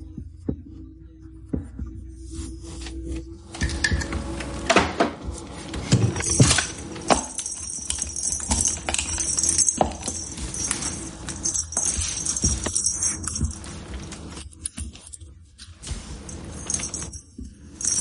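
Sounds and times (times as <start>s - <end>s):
metallic jingling: 6.1s - 14.4s, 16.1s - 18.0s.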